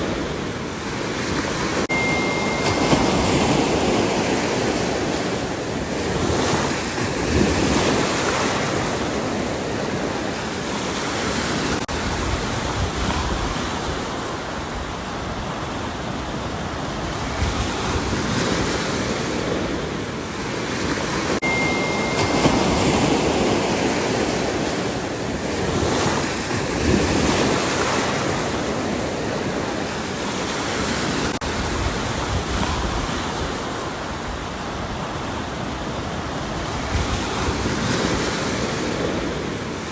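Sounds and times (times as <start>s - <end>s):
ocean surf breaking: 0.0s - 39.9s
thin high steady tone: 1.9s - 5.6s, 21.4s - 24.3s.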